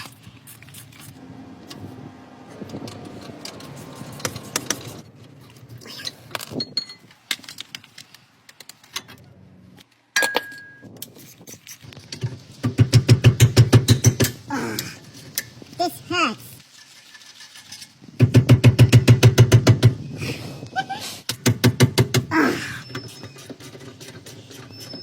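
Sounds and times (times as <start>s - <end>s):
metal clatter: 16.6s - 18.4s.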